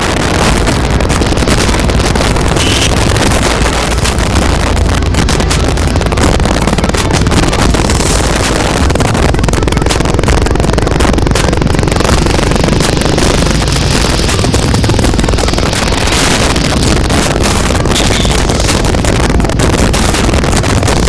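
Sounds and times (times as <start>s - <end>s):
motorbike engine running: 0.0s - 21.0s
wind rumbling over microphone: 0.0s - 21.0s.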